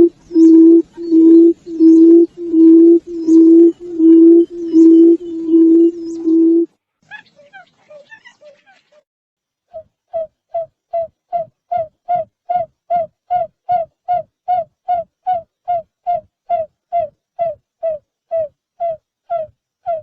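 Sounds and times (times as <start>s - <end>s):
bird hooting notes: 0.0s - 6.7s.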